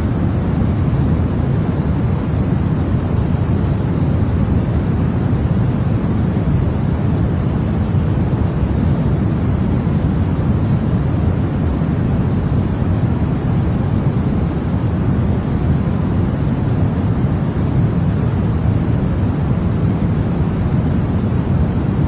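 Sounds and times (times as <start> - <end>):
deep white noise: 0.0 - 22.0.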